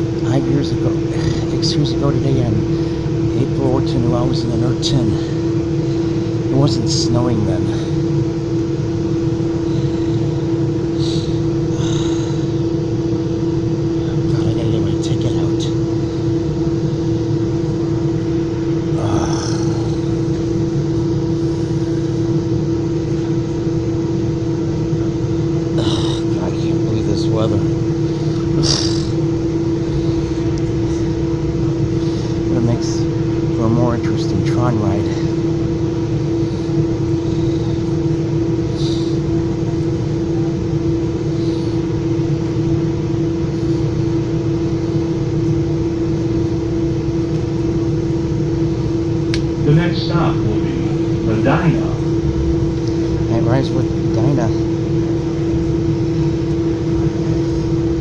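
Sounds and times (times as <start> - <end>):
droning hum: 0.0 - 58.0
train low rumble: 0.0 - 58.0
train car rumble and hum: 47.2 - 54.6.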